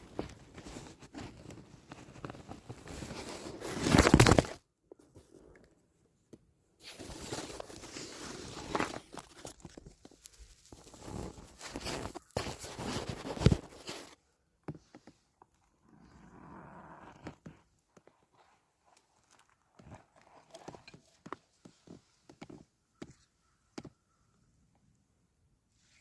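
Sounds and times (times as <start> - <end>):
handling noise on microphone: 6.8 - 15.2.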